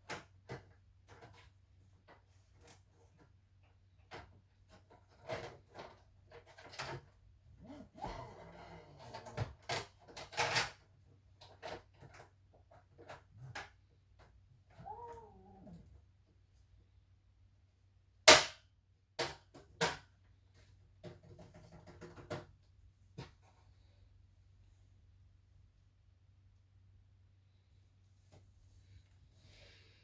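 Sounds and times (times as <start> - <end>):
cat meowing: 14.8 - 15.9.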